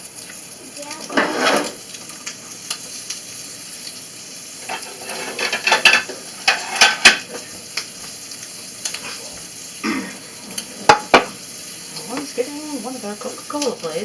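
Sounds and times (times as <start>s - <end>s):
food sizzling in a pan: 0.0s - 14.0s
utensil clinking and scraping pan: 1.0s - 1.8s, 4.6s - 7.4s.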